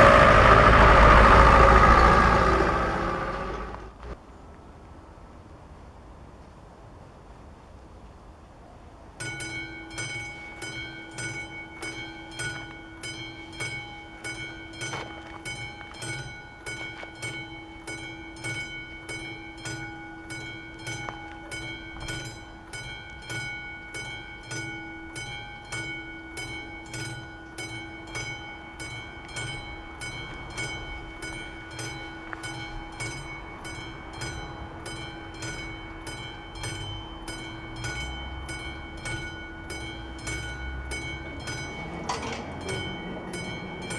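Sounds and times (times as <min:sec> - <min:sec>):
level crossing bell ringing: 0:09.3 - 0:43.9.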